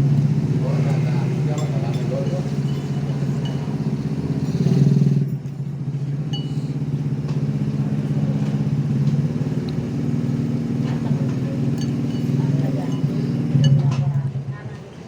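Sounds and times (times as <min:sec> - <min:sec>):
vehicle engine running: 0:00.0 - 0:15.0
light clinks: 0:01.5 - 0:07.6, 0:10.8 - 0:14.2.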